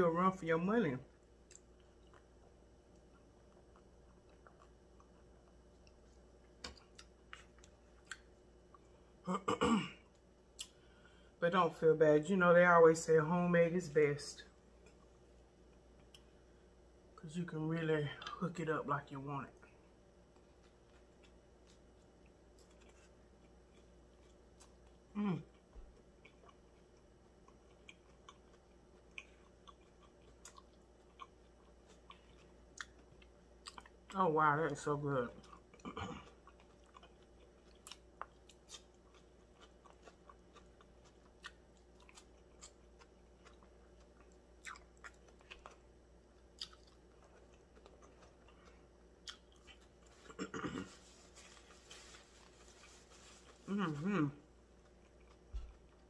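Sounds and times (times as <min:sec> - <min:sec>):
faint wet chewing: 0:01.2 - 0:09.0, 0:19.6 - 0:34.2, 0:35.4 - 0:53.7, 0:54.5 - 0:56.0
woman's voice: 0:34.2 - 0:35.4, 0:53.6 - 0:54.4.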